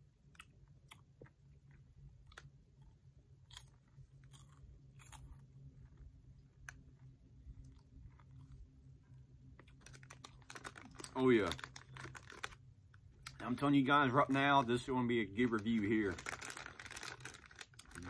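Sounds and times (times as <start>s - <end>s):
low steady hum: 0.0s - 18.0s
crunchy chewing: 0.2s - 12.6s, 16.1s - 18.0s.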